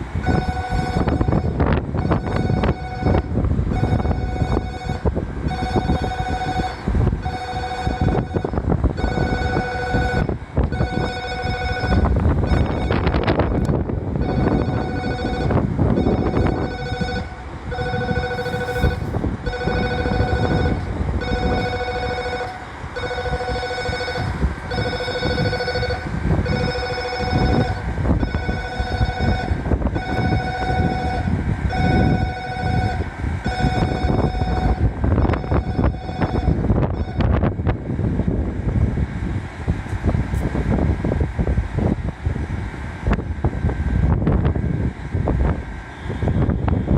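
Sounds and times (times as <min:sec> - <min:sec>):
wind buffeting microphone: 0:00.0 - 0:46.9
electronic railway warning bell: 0:00.2 - 0:37.5.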